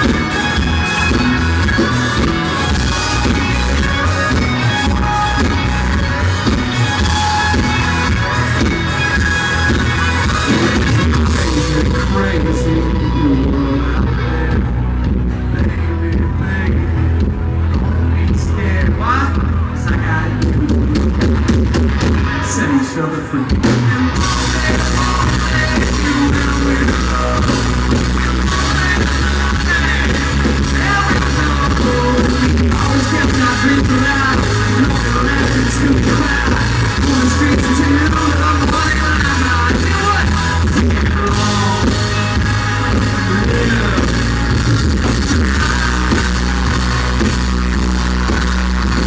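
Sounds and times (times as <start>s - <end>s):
live country band playing: 0.0s - 49.0s
lead vocals singing: 22.4s - 47.4s.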